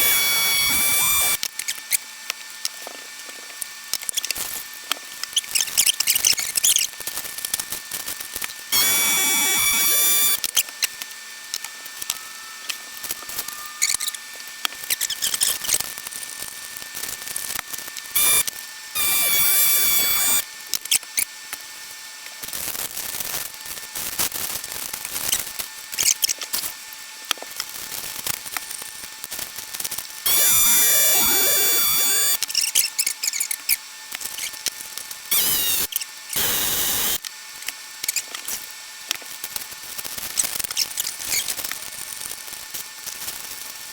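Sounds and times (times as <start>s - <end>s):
vacuum pump whining: 0.0s - 1.4s, 8.7s - 10.6s, 18.2s - 20.4s, 30.3s - 32.4s, 35.3s - 37.2s.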